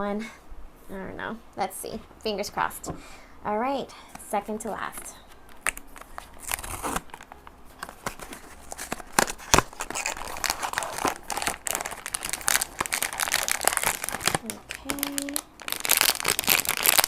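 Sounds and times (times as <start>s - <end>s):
plastic wrapping crinkling and tearing: 4.9s - 17.0s.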